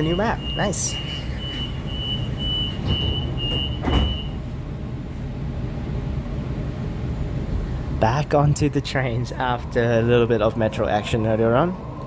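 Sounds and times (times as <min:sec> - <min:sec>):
high door warning beeps: 0:00.0 - 0:04.5
low train hum: 0:00.0 - 0:12.0
train doors thumping shut: 0:01.6 - 0:04.6.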